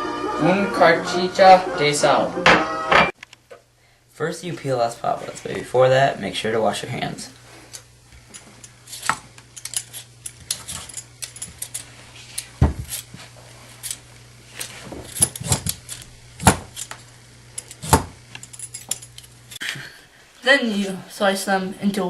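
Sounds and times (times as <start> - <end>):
potatoes being peeled: 7.5 - 19.6.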